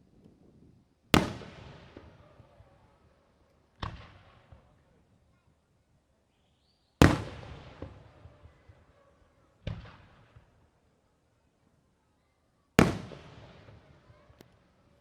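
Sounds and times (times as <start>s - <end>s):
fireworks booming: 1.2s - 2.6s, 12.8s - 14.4s.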